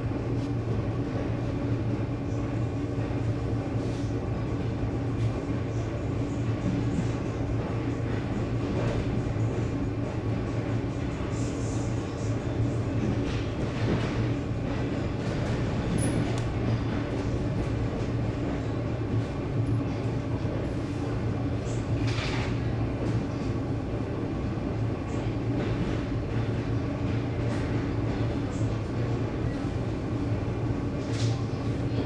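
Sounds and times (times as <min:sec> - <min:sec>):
train low hum: 0:00.0 - 0:32.0.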